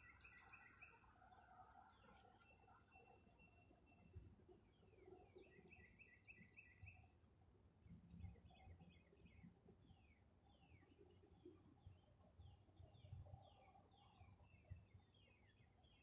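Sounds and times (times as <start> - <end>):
bird chirps: 0.0 - 1.0.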